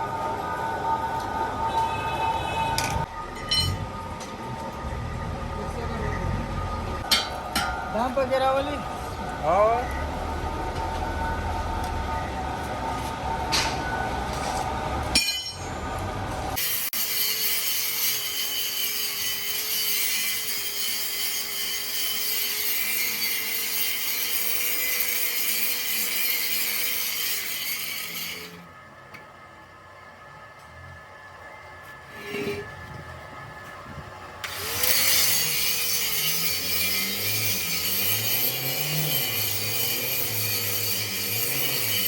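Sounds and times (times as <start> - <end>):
power tool grinding metal: 16.6 - 28.7, 34.4 - 42.0.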